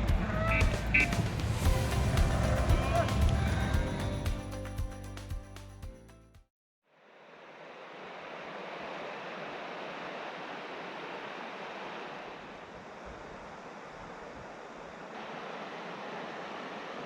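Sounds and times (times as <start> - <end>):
river water rushing: 7.2 - 17.0.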